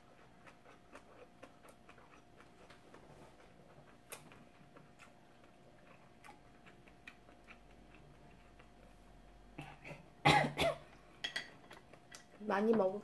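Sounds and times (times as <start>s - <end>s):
chewing mouth clicks: 0.2s - 2.8s, 3.9s - 9.0s.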